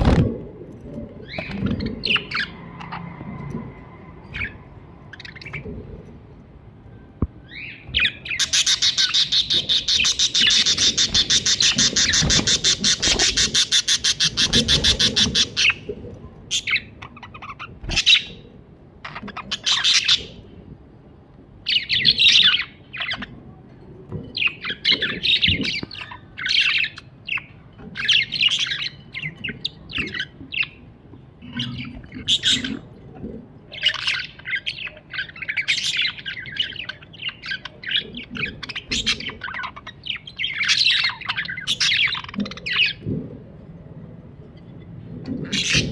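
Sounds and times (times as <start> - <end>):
budgerigar chirping and warbling: 8.0 - 15.8.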